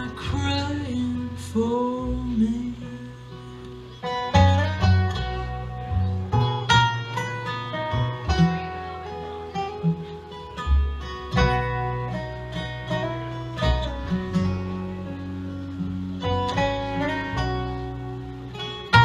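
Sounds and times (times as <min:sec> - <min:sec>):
deep bass notes: 0:00.0 - 0:19.0
plucked acoustic guitar: 0:00.0 - 0:19.0.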